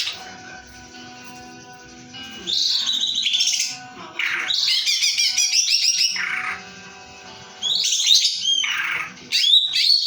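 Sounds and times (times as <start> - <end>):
bird trills and whistles: 2.4 - 6.7, 7.6 - 10.0.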